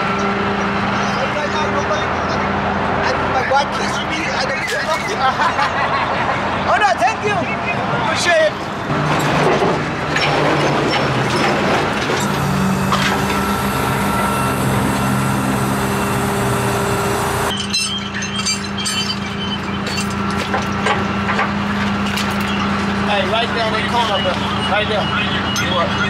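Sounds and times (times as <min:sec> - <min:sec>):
vehicle engine hum: 0:08.6 - 0:26.0.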